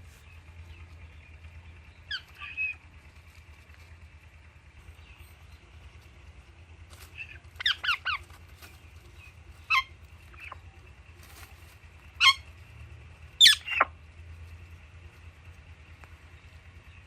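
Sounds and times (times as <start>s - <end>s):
parrots chirping: 2.0s - 2.8s, 7.2s - 10.6s, 12.1s - 12.6s, 13.4s - 13.9s.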